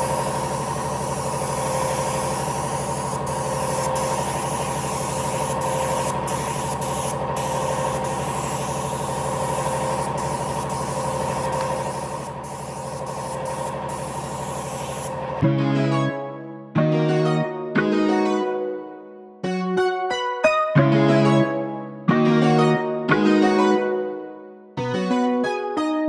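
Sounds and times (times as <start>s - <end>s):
workshop machine motor hum: 0.0s - 15.4s.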